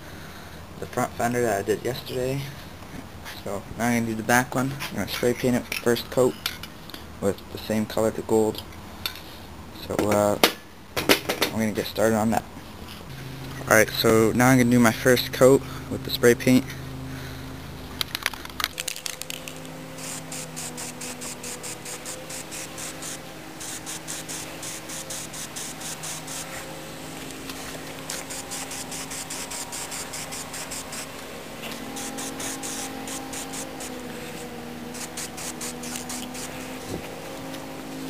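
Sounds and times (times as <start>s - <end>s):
low hum: 13.0s - 38.0s
spray paint can hissing: 18.2s - 26.6s, 27.5s - 37.0s.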